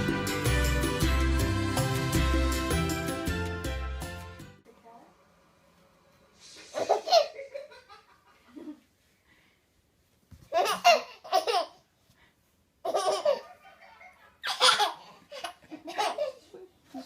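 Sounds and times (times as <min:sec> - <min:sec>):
baby laughing: 0:06.8 - 0:08.8, 0:10.5 - 0:11.8, 0:12.8 - 0:17.0.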